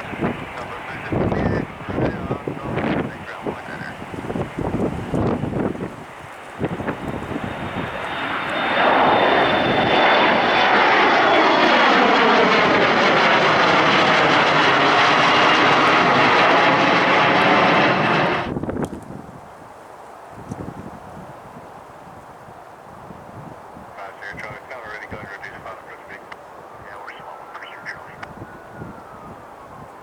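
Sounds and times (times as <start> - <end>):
wind buffeting microphone: 0.0 - 11.4, 17.2 - 25.6, 26.4 - 30.0
jet engines passing: 0.0 - 18.7, 23.6 - 30.0.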